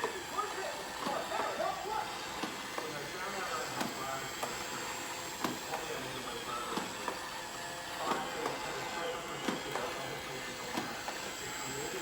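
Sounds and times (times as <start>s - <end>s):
robot vacuum whining: 0.0s - 12.0s
sharp clicks and knocks: 5.4s - 5.8s.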